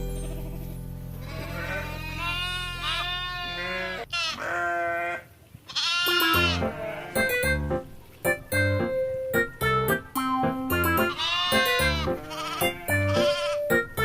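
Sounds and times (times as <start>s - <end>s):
background music: 0.0s - 2.5s, 6.1s - 14.0s
goat bleating: 1.2s - 7.5s, 11.1s - 13.7s.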